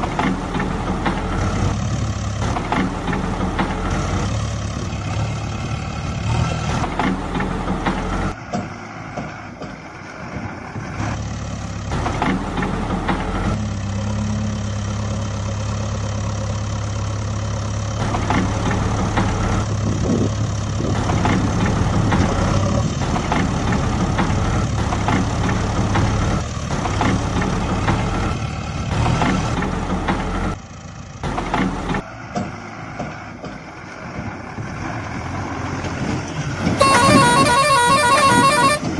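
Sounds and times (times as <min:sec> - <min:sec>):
heavy vehicle engine humming: 0:00.0 - 0:38.9.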